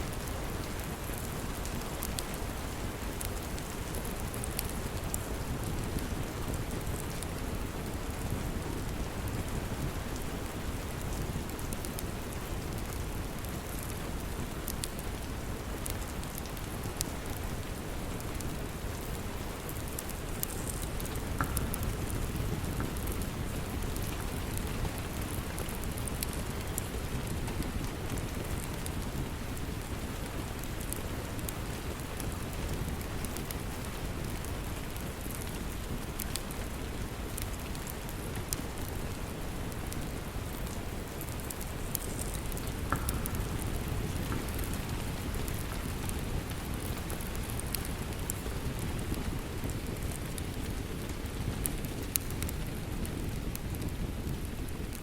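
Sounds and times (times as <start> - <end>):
steady rain falling: 0.0 - 55.0
wood fire crackling: 0.0 - 55.0.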